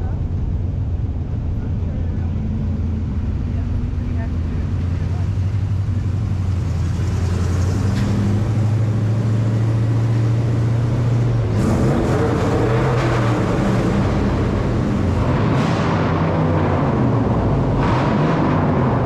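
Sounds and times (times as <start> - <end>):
vehicle engine revving: 4.5 - 19.0.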